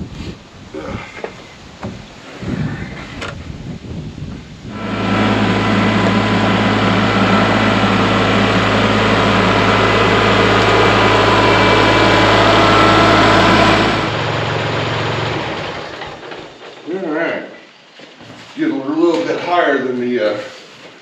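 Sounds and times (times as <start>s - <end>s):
tractor engine running: 4.7s - 16.7s.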